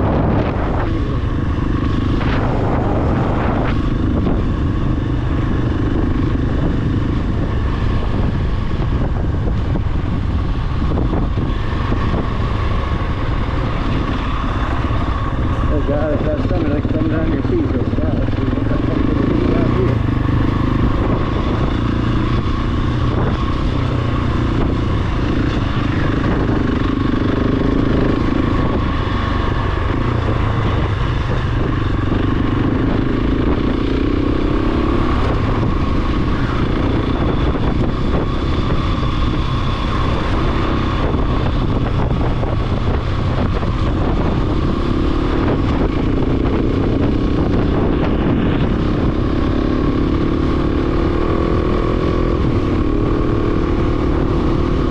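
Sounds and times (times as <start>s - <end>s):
motorcycle engine running: 0.0s - 54.9s
wind and riding noise: 0.0s - 54.9s.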